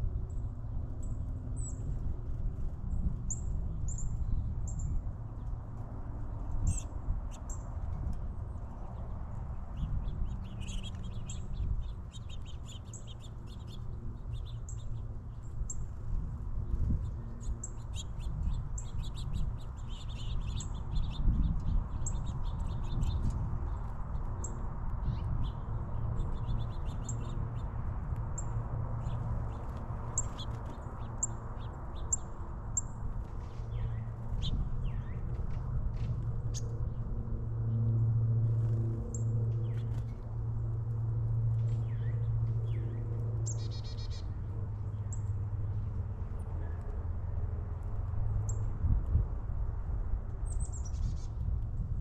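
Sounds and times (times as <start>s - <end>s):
steady low rumble and hum: 0.0s - 52.0s
small birds chirping: 6.4s - 15.9s, 16.7s - 37.0s, 38.6s - 40.2s, 41.5s - 45.4s.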